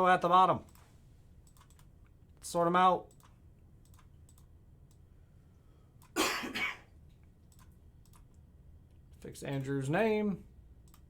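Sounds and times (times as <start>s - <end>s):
computer mouse clicking: 0.6s - 1.9s, 3.1s - 5.0s, 7.5s - 8.4s
person coughing: 6.2s - 6.9s.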